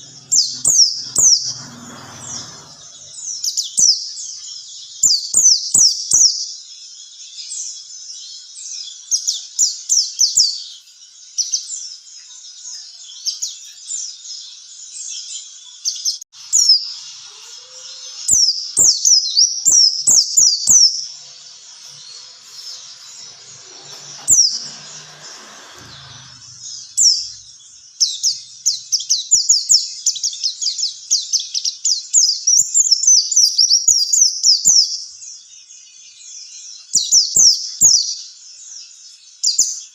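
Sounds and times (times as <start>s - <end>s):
white-eye bird chirping: 0.0s - 6.5s, 11.4s - 35.4s.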